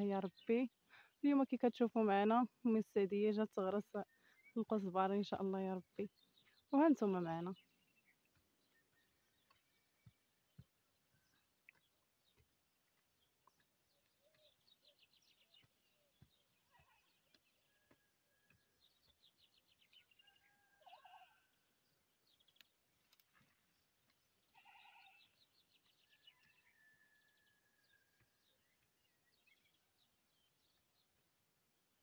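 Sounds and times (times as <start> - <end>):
small birds chirping and trilling: 0.0 - 1.5, 3.2 - 32.0
short bird calls: 24.5 - 25.4.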